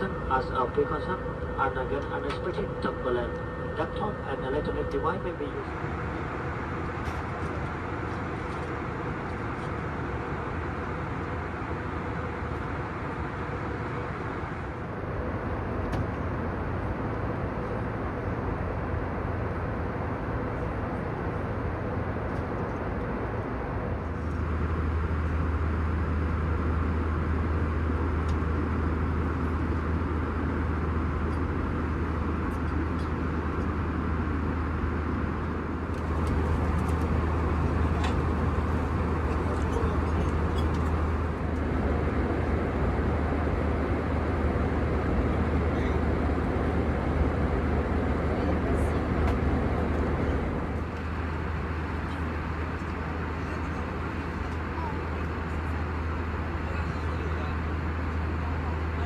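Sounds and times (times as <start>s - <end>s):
deeper hum: 0.0s - 20.2s
airplane cabin drone: 0.0s - 59.0s.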